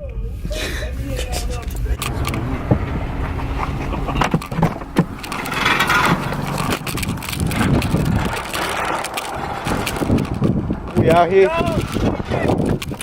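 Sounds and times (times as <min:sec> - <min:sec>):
car engine and road rumble: 0:00.0 - 0:13.0
rustling handling noise: 0:00.2 - 0:10.4
clicks and knocks: 0:01.4 - 0:10.5.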